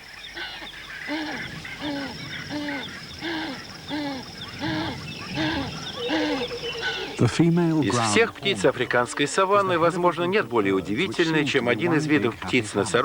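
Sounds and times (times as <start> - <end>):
small bird chirps: 0.0 - 8.1
deep hooting bird calls: 0.0 - 13.0
high insect trill: 0.0 - 13.0.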